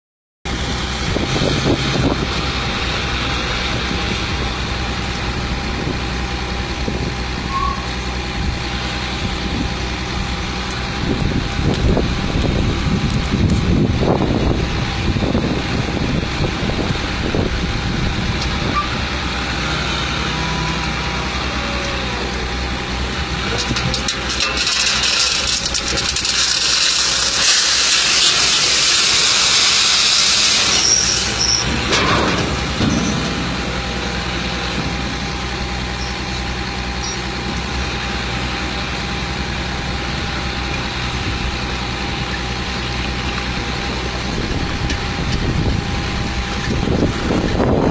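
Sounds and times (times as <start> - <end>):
truck engine running: 0.5 - 47.9
loud hiss: 26.4 - 31.8.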